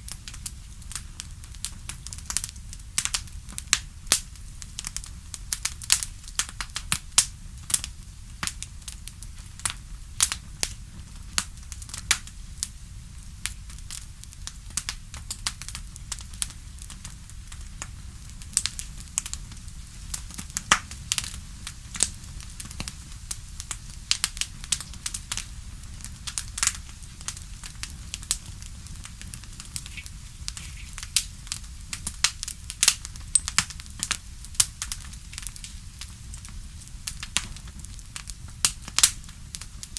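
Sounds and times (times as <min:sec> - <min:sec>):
low rumble of flame: 0:00.0 - 0:39.9
wood fire crackling and popping: 0:00.0 - 0:39.9.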